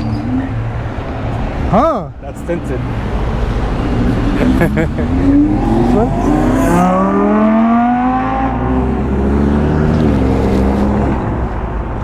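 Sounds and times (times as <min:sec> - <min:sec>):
car engine accelerating: 0:03.9 - 0:10.6.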